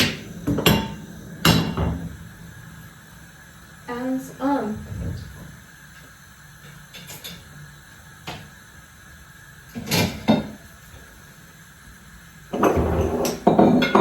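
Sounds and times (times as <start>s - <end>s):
kitchen things knocking: 12.6s - 14.0s.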